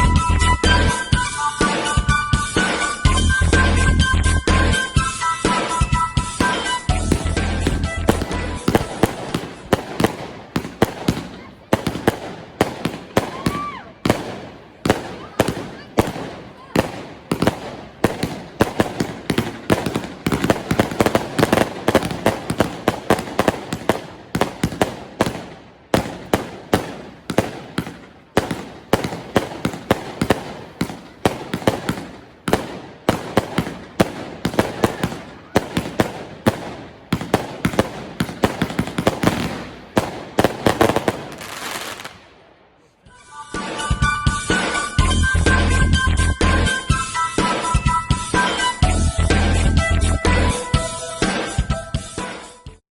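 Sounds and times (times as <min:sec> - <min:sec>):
firework battery firing: 0:04.5 - 0:42.4.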